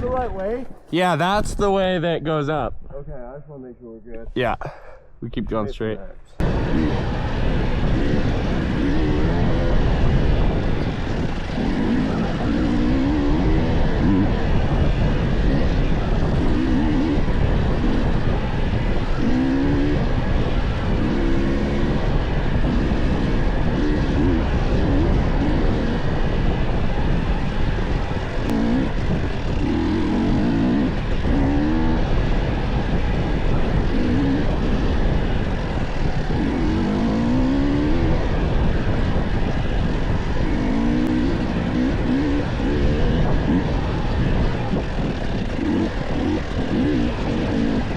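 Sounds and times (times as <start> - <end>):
dirt bike engine revving: 6.4 - 47.9.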